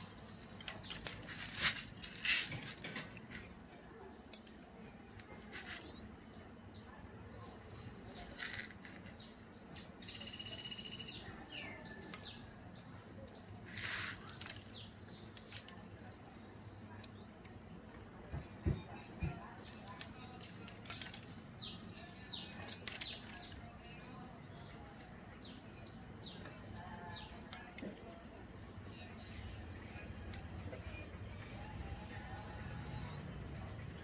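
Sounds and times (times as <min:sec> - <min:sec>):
bird chirping call: 0:07.6 - 0:17.4.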